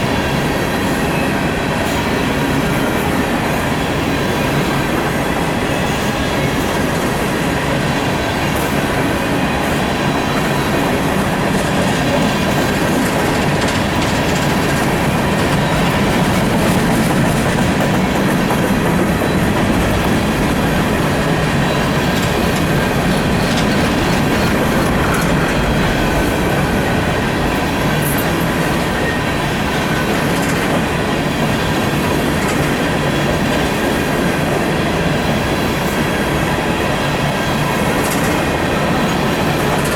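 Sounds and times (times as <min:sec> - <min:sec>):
clattering at rail joints: 0:00.0 - 0:39.9
steel wheels rumbling on rail: 0:00.0 - 0:39.9.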